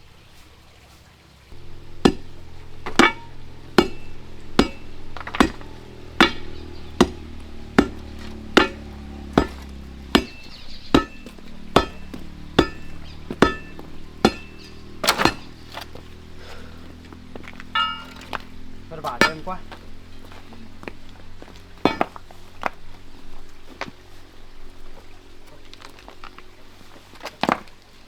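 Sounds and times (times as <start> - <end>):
crowbar striking hard ground: 1.6 - 24.0.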